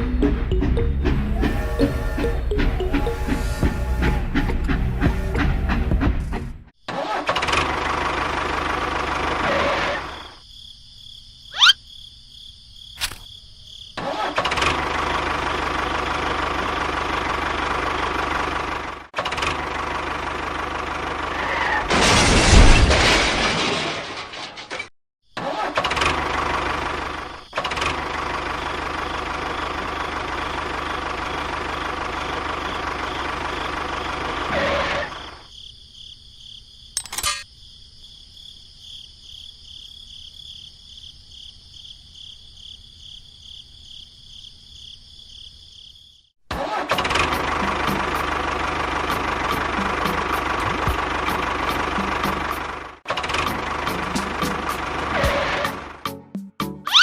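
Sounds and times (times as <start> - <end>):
small motor running: 1.2 - 5.6.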